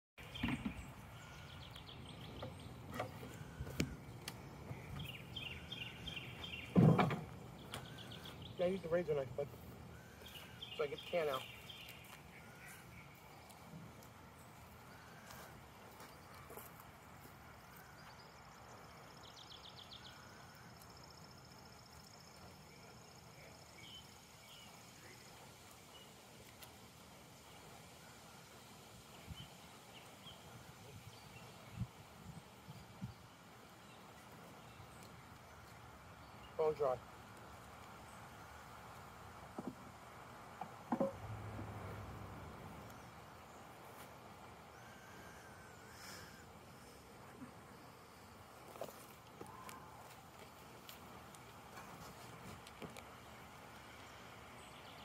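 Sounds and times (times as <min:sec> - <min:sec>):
bird singing falling notes: 0:00.2 - 0:08.9
distant bird trills and chirps: 0:00.2 - 0:55.0
outdoor background noise: 0:00.2 - 0:55.0.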